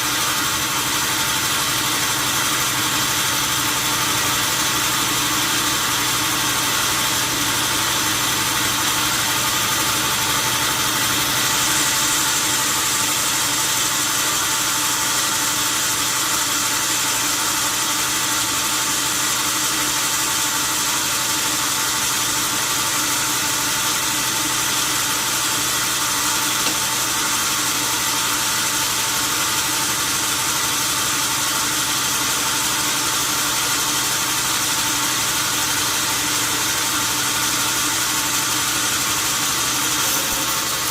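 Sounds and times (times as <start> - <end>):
machine hiss: 10.8 - 14.7.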